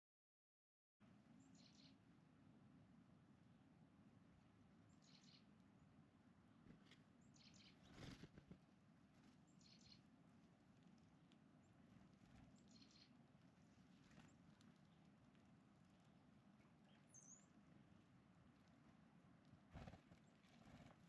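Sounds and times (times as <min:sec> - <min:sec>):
songbird chirping: 0:01.3 - 0:02.1, 0:04.8 - 0:06.0, 0:07.2 - 0:08.2, 0:09.2 - 0:19.4
rustle: 0:06.6 - 0:21.0.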